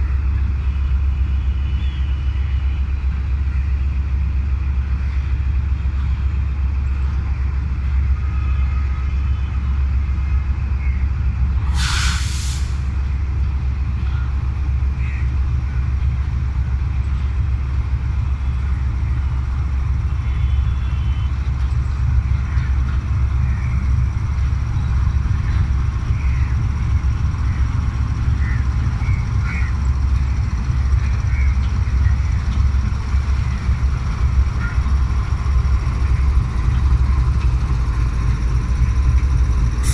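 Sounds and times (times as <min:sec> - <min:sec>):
diesel locomotive engine rumbling: 0:00.0 - 0:39.9
compressed air hiss: 0:11.7 - 0:12.8.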